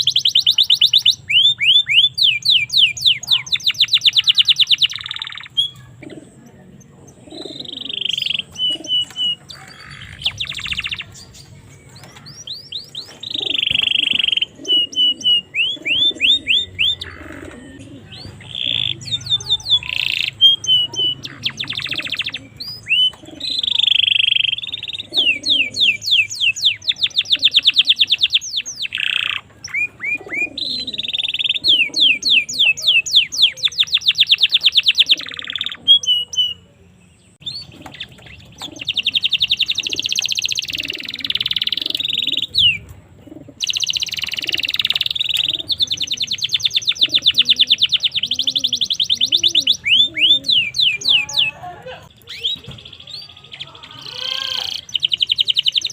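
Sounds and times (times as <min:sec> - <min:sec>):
canary singing trills: 0:00.0 - 0:55.9.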